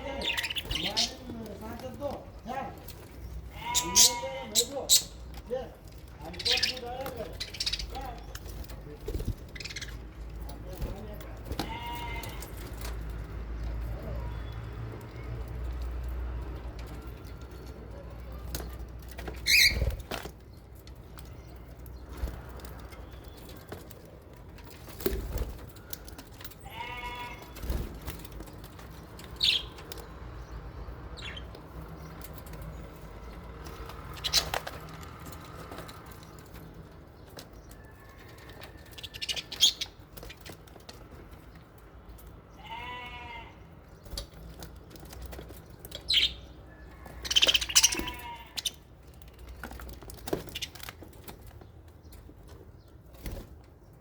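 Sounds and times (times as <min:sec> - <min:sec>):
parakeets chirping: 0:00.0 - 0:11.1, 0:17.3 - 0:20.3, 0:28.2 - 0:36.5, 0:39.0 - 0:40.6, 0:45.2 - 0:49.5, 0:50.2 - 0:51.0
bird wavering calls: 0:47.2 - 0:48.7.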